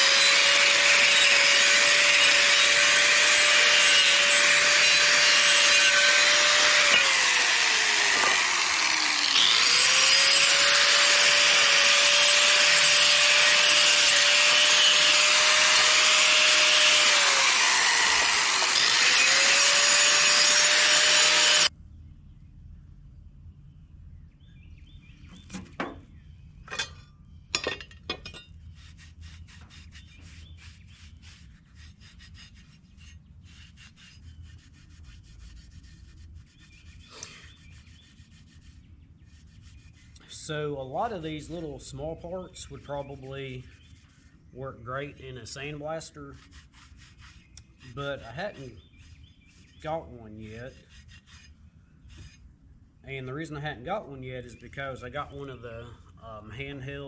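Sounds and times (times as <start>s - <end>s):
power tool grinding metal: 0.0s - 21.7s.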